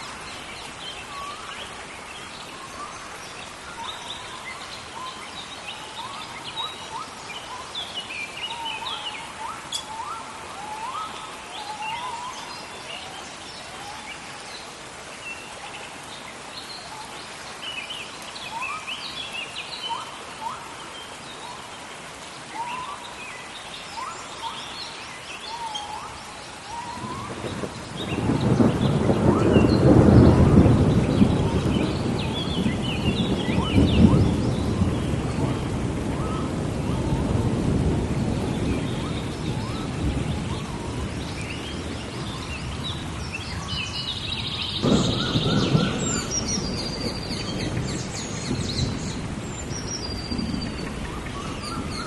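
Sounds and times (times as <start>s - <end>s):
rain falling: 0.0s - 52.0s
thunder roll: 27.0s - 38.8s, 44.8s - 49.4s
birds chirping: 38.2s - 52.0s.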